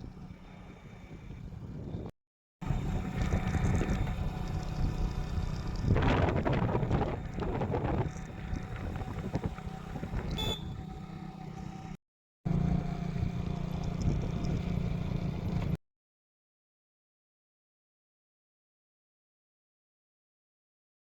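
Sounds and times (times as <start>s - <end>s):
vehicle engine running: 0.0s - 15.8s.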